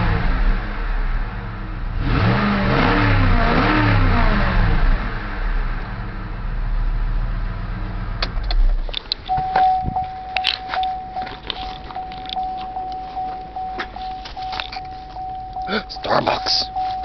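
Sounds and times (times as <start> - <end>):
car engine running: 0.0 - 17.0
car warning chime dinging: 9.3 - 17.0.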